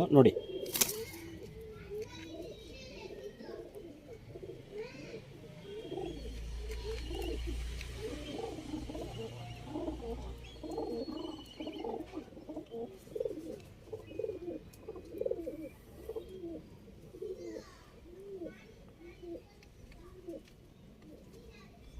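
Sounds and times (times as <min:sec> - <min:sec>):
pigeons cooing: 0:00.0 - 0:21.6
faint high chirps: 0:00.3 - 0:07.5, 0:09.0 - 0:13.3.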